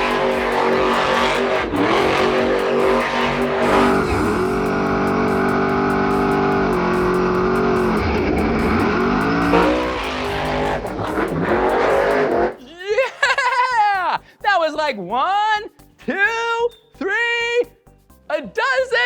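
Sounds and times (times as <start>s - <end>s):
truck engine revving: 0.0s - 12.6s
background music: 0.0s - 19.0s.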